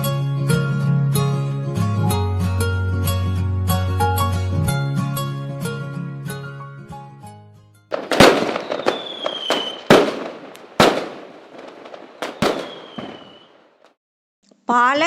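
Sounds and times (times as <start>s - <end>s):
firecracker bangs and crackling: 7.9s - 14.0s
high falling whistle: 8.4s - 9.9s, 12.2s - 13.6s.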